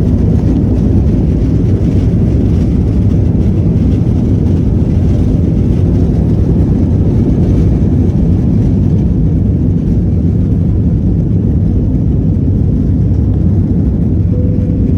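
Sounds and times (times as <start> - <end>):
jet engines at take-off: 0.0 - 14.9.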